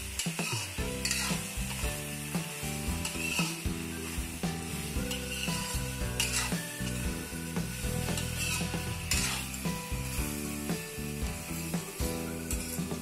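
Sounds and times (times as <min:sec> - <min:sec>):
meat and onions sizzling in oil: 0:00.0 - 0:13.0
ladle scraping a pan: 0:00.2 - 0:01.6, 0:02.9 - 0:04.2, 0:04.9 - 0:07.1, 0:07.8 - 0:09.8.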